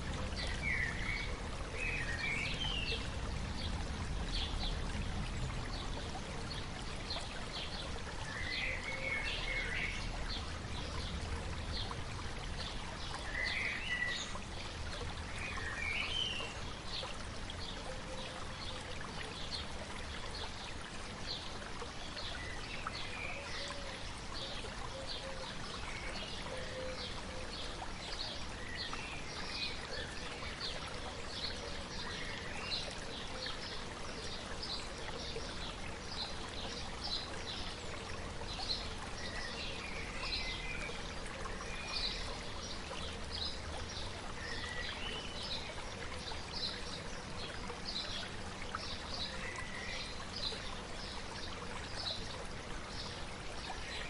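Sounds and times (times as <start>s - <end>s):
stream babbling: 0.0s - 54.0s
birds singing: 0.4s - 3.1s, 22.2s - 51.2s.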